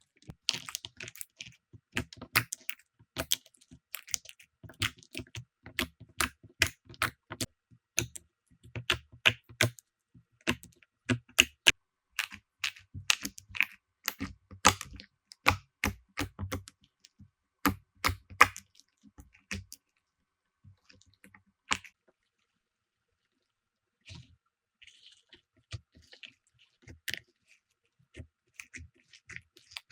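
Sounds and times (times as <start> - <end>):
slime clicking and popping: 2.0 - 9.8, 10.4 - 16.7, 17.6 - 18.7, 19.4 - 19.8.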